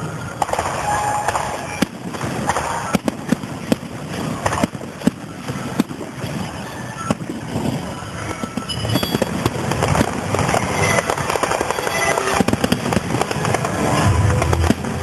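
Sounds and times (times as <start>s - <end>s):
firework whistles: 0.0s - 15.0s
fireworks bangs and crackling: 0.0s - 15.0s
crowd murmur: 9.3s - 15.0s.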